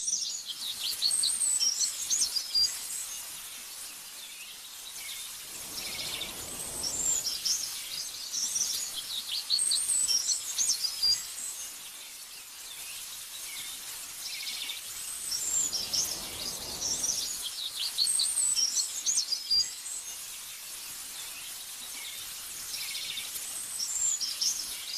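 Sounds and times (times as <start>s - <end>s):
songbirds chirping: 0.0s - 24.9s
soft rushing noise: 5.2s - 8.4s, 15.0s - 18.1s.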